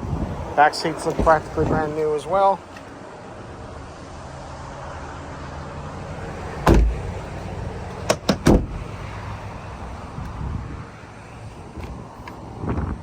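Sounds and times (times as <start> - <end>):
car door shutting: 1.0 - 1.9, 6.6 - 7.2, 8.0 - 8.8.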